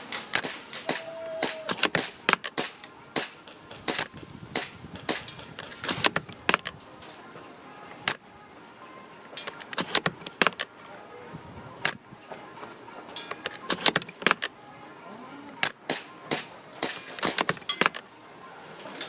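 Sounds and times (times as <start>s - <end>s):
airsoft rifle firing: 0.1s - 6.7s, 15.6s - 18.0s
rifle bolt clicking: 9.4s - 10.7s.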